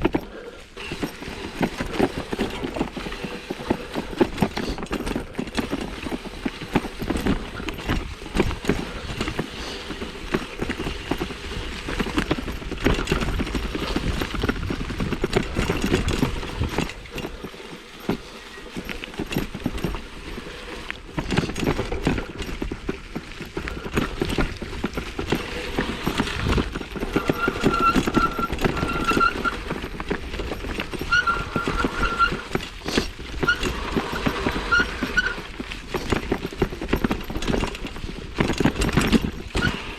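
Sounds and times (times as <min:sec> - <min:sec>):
mountain bike rattling over dirt: 0:00.0 - 0:39.9
high squeaks: 0:25.9 - 0:29.7, 0:30.8 - 0:35.5.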